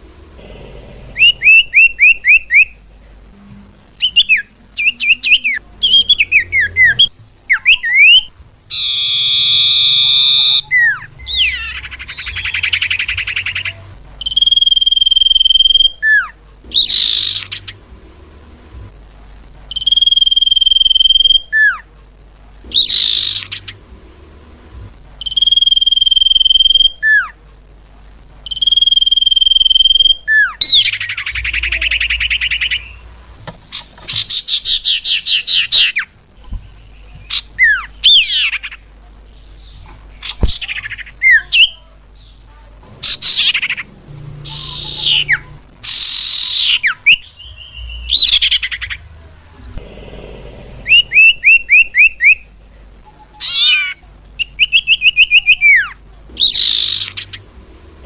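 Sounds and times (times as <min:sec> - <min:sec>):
bird whistling and trilling: 0:01.2 - 0:02.8, 0:04.0 - 0:17.7, 0:19.7 - 0:21.8, 0:22.7 - 0:23.7, 0:25.2 - 0:27.3, 0:28.5 - 0:33.0, 0:36.8 - 0:38.6, 0:44.5 - 0:48.9, 0:50.9 - 0:52.4, 0:53.4 - 0:57.4.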